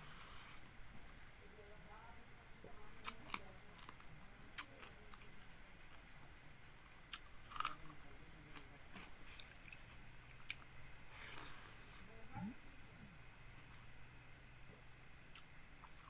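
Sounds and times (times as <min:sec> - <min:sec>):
insects droning: 0:00.0 - 0:16.0
person eating clicks and smacks: 0:03.0 - 0:05.3, 0:07.1 - 0:08.7, 0:09.3 - 0:10.7, 0:15.3 - 0:16.0.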